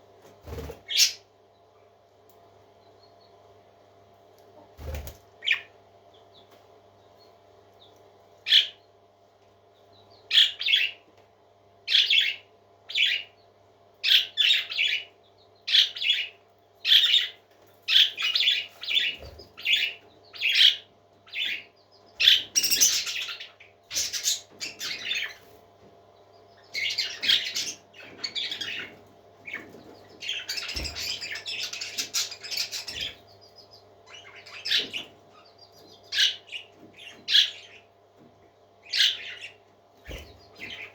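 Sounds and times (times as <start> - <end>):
parrot chicks calling: 0.5 - 1.3, 5.4 - 6.4, 8.4 - 8.8, 10.2 - 11.0, 11.9 - 13.4, 14.0 - 25.6, 26.3 - 37.9, 38.8 - 40.9.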